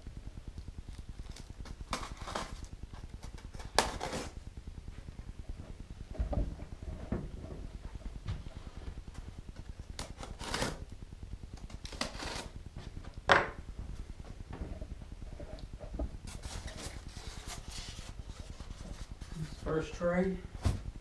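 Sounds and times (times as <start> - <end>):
packaging scraping and rustling: 16.2 - 19.7.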